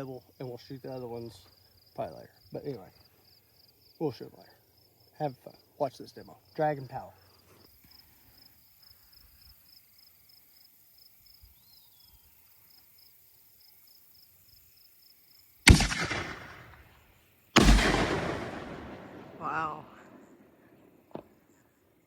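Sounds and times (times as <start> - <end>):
crickets chirping: 0.0 - 22.0
firework booms echoing: 15.7 - 21.5.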